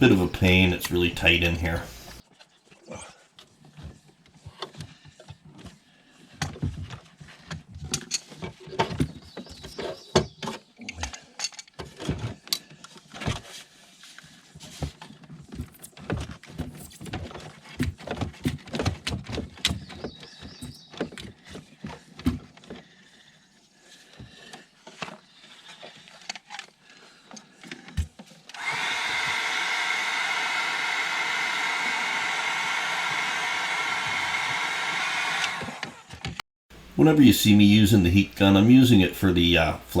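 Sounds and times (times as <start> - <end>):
heat gun running: 0.0 - 2.2, 28.6 - 40.0.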